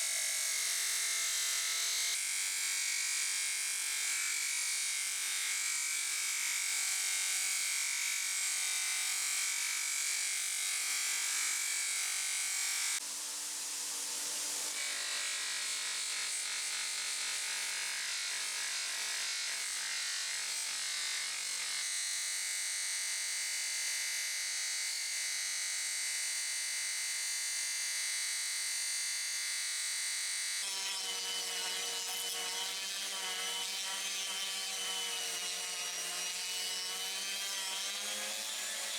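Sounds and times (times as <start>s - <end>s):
small power tool whining: 30.6s - 38.9s.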